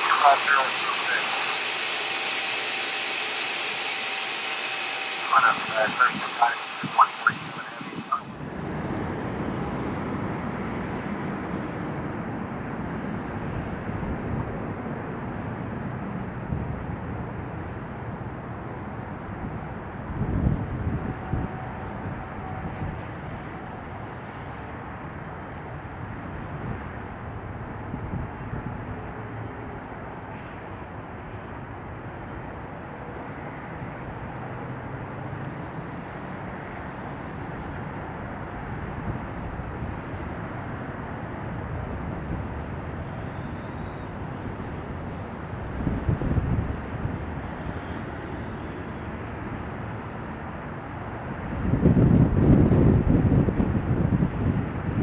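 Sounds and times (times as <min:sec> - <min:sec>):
jet engines rushing: 0:00.0 - 0:51.4
wind buffeting microphone: 0:51.5 - 0:55.0.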